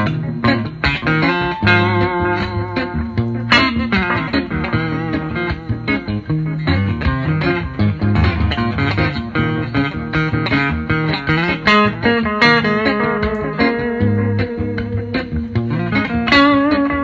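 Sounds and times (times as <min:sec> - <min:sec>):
bass line: 0:08.2 - 0:09.9
electric guitar quick notes: 0:08.2 - 0:10.2.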